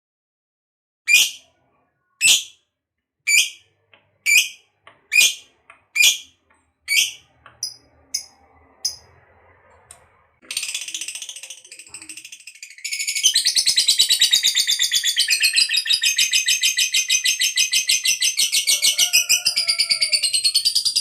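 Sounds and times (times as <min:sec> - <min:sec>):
lovebird shrill calls: 0:03.3 - 0:03.6, 0:04.3 - 0:05.4, 0:06.0 - 0:06.3, 0:06.9 - 0:08.3
lovebird rapid chattering: 0:06.9 - 0:09.0.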